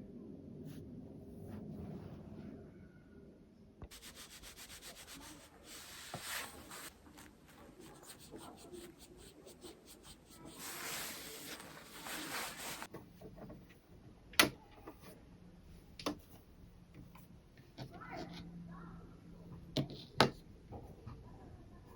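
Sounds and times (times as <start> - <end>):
rubbing and scraping strokes: 3.9 - 12.9.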